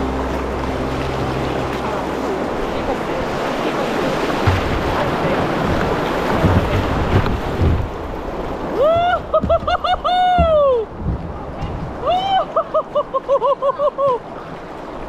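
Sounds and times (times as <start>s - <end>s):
rushing river water: 0.0s - 15.0s
wind noise: 4.0s - 12.4s
dull low knocks: 4.2s - 12.0s.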